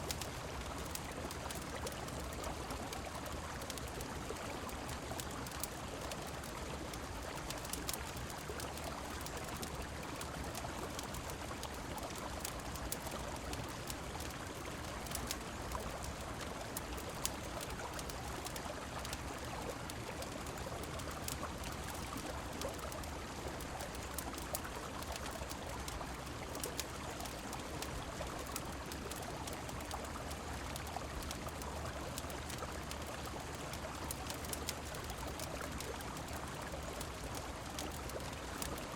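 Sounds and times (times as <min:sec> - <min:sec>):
rain: 0:00.0 - 0:38.9
sharp crackles and ticks: 0:00.0 - 0:38.9.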